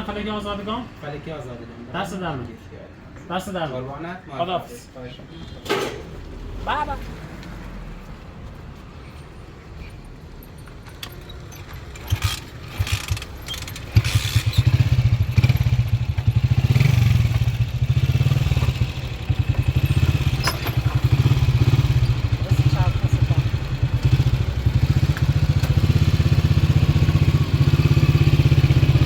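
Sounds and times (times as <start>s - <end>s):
engine clunks: 10.7s - 29.0s
motorcycle engine starting: 11.0s - 29.0s.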